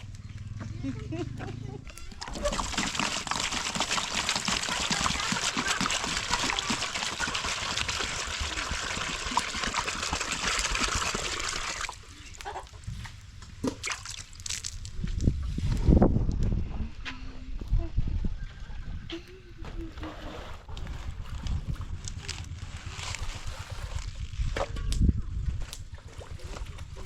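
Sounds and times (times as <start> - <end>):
water pouring and splashing: 2.0 - 12.4, 13.6 - 15.3.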